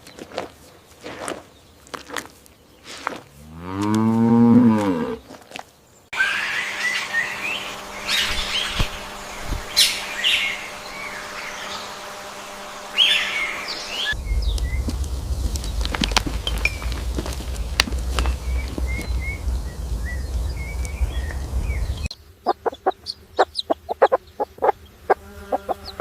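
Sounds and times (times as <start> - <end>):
cow mooing: 3.4 - 5.2
small birds chirping: 4.7 - 26.0
steady hum: 6.2 - 26.0.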